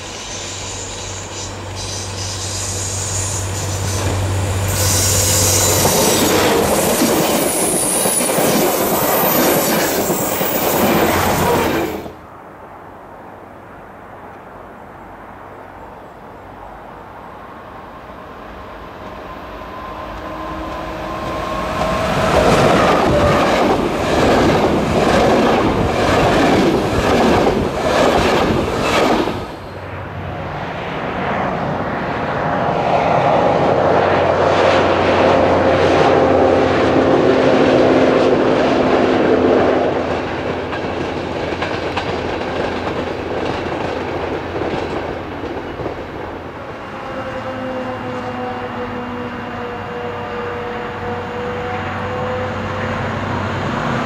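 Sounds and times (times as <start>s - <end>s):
distant train humming past: 0.0s - 12.5s, 13.1s - 54.0s
train wheels clattering over rail joints: 40.1s - 46.3s.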